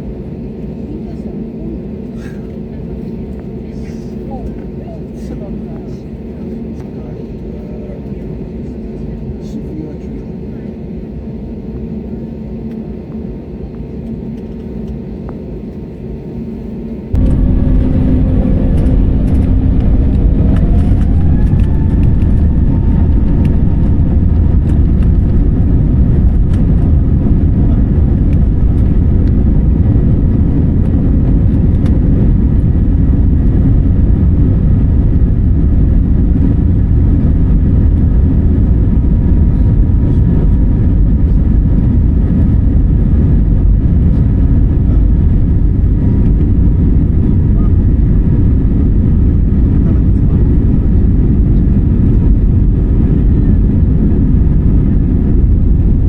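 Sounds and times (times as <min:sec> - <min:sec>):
jet engine rumble in cabin: 0:00.0 - 0:56.0
engine whine rising in pitch: 0:17.2 - 0:39.0.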